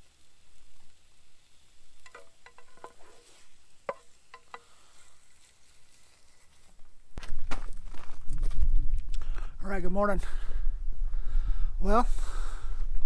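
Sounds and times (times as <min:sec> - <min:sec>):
utensil clinking against cookware: 0:02.0 - 0:03.2, 0:03.9 - 0:04.8.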